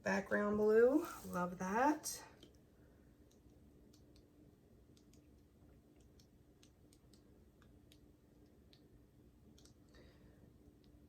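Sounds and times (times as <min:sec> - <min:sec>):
faint steady hum: 0:00.0 - 0:11.0
faint clicks: 0:09.5 - 0:10.1.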